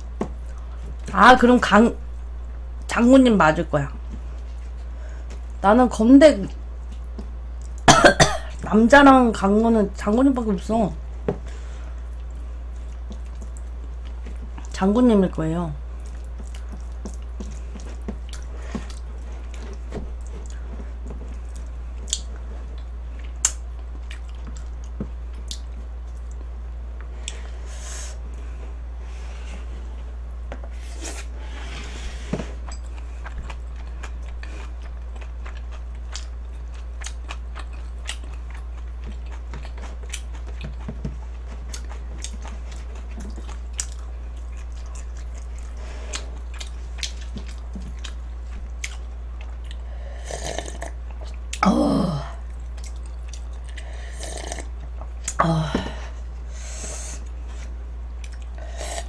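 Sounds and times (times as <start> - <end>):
steady low hum: 0.0 - 59.0
person chewing food: 6.8 - 7.9, 11.4 - 14.8, 15.9 - 27.5, 32.2 - 51.6, 52.3 - 59.0.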